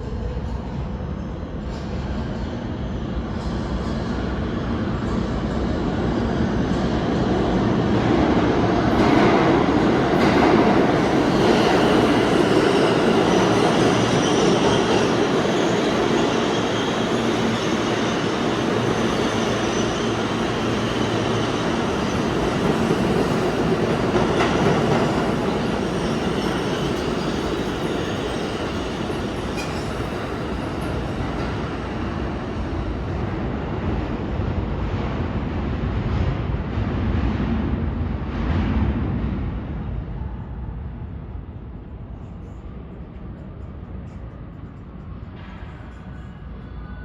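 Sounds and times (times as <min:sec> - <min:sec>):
subway train wheel-on-rail noise: 0:00.0 - 0:47.0
high wheel squeal: 0:11.3 - 0:31.1.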